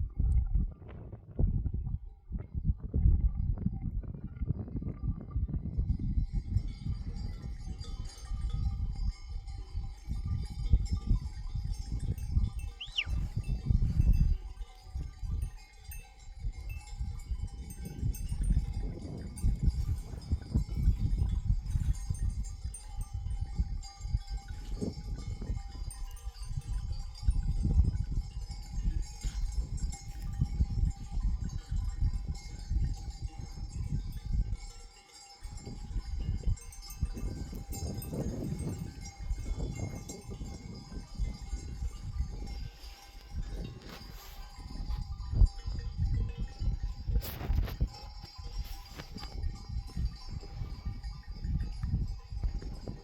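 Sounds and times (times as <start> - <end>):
sheep bells clinking: 3.4 - 53.0
high whistle-like chirp: 12.8 - 13.2.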